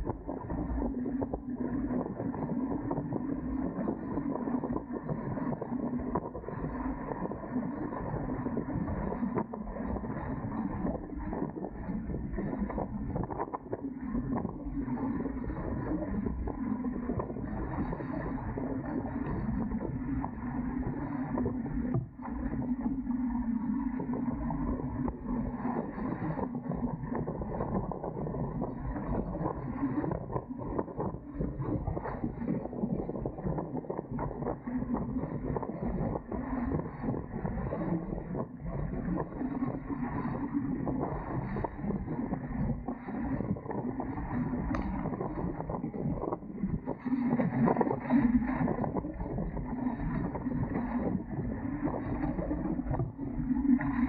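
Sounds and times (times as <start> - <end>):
water rushing along hulls: 0.0 - 54.0
wind buffeting microphone: 27.0 - 54.0
wind: 41.4 - 50.3.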